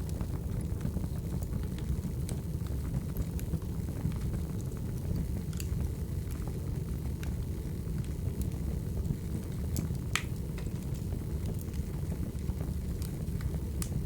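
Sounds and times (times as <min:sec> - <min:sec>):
wood fire crackling: 0:00.0 - 0:14.0
small pops and snaps: 0:05.5 - 0:05.7, 0:09.8 - 0:11.8.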